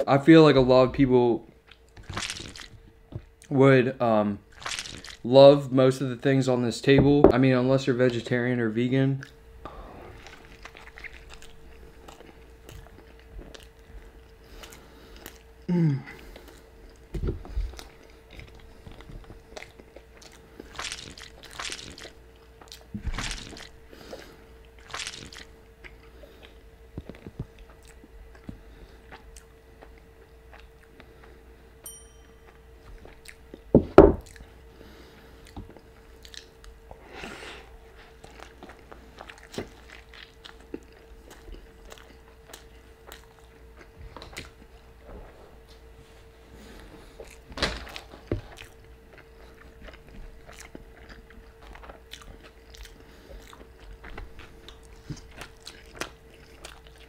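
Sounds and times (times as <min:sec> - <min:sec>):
faint steady hum: 0:00.0 - 0:57.0
person biting and chewing: 0:01.6 - 0:02.8, 0:04.5 - 0:05.2, 0:10.2 - 0:13.8, 0:17.7 - 0:31.1, 0:38.1 - 0:44.7, 0:47.2 - 0:57.0.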